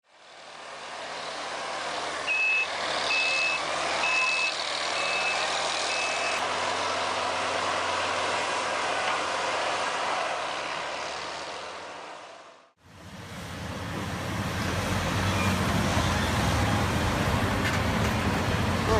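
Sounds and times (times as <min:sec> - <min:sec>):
reversing alarm beeping: 0:02.3 - 0:06.4.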